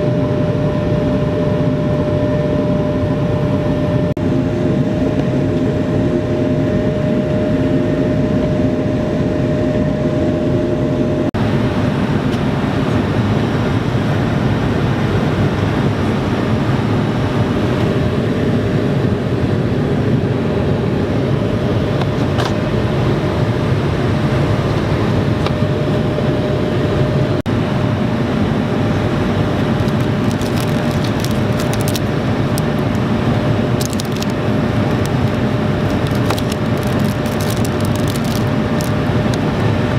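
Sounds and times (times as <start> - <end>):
jet engine roar in cabin: 0.0 - 39.9
steady hum: 0.0 - 39.9
crackles: 29.6 - 39.5.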